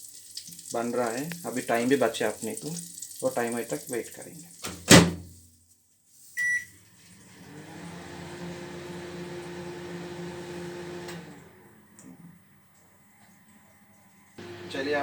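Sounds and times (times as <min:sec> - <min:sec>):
microwave keypad beep: 0:06.4 - 0:06.7
microwave oven humming: 0:07.3 - 0:12.4, 0:14.2 - 0:15.0.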